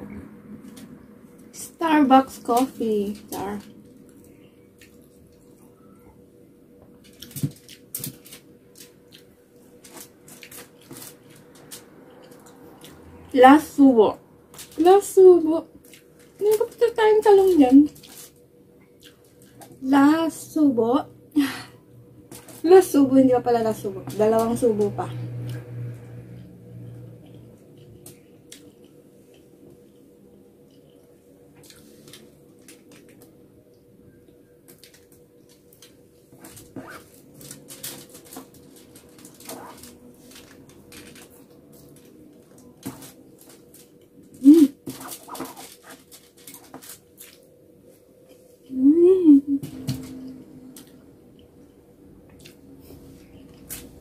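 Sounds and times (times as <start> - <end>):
faint steady hum: 0.0 - 54.0
chewing and mouth noises: 18.8 - 19.7
person chewing noodles: 18.8 - 19.7, 26.3 - 33.8.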